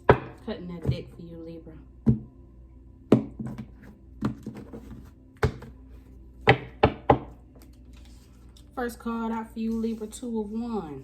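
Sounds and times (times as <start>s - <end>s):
cards tapped on a table: 5.4s - 5.7s.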